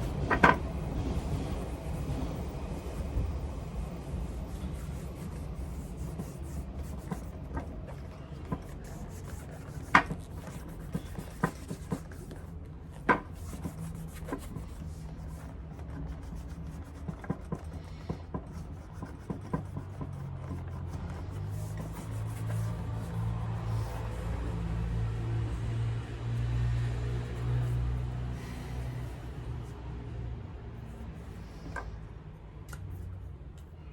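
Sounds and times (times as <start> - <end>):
rubbing leather shoe: 4.5 - 25.8.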